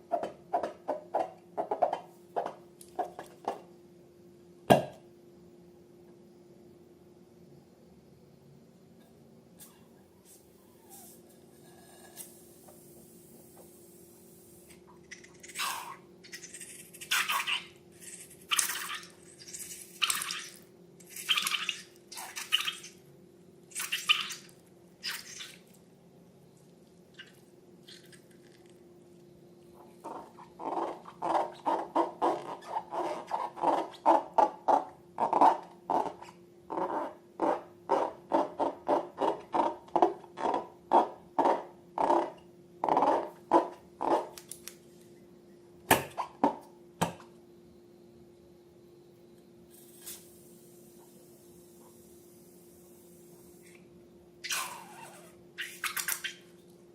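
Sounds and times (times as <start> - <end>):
faint steady hum: 0.0 - 56.9
slime squelching: 15.1 - 23.0, 23.7 - 25.8.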